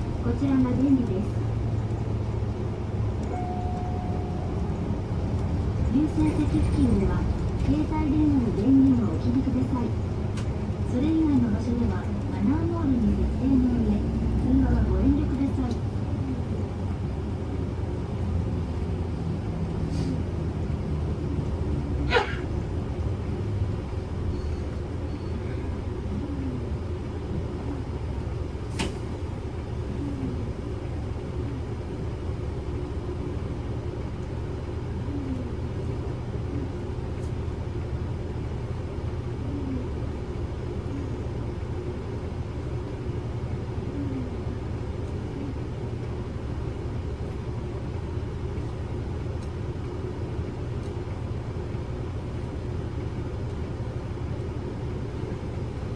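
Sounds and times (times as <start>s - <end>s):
bus engine and road rumble: 0.0s - 55.9s.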